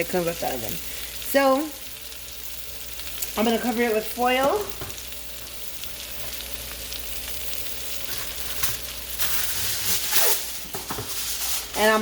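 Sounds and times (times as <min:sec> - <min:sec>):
fish sizzling in a frying pan: 0:00.0 - 0:12.0.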